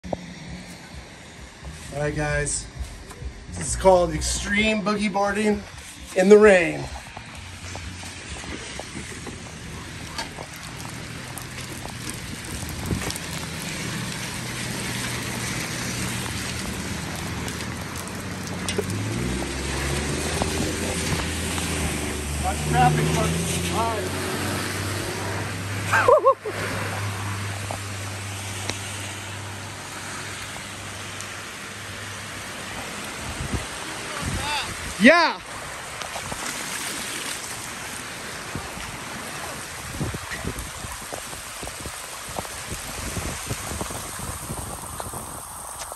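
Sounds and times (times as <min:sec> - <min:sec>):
heavy rain on pavement: 0:00.0 - 0:45.9
runoff water rushing along curb: 0:00.0 - 0:45.9
low engine hum: 0:05.5 - 0:33.8
drips and splashes: 0:05.7 - 0:45.9.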